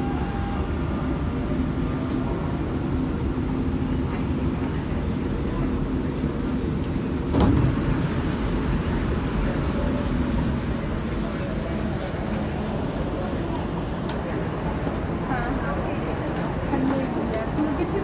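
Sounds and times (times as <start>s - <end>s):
train low rumble: 0.0s - 18.0s.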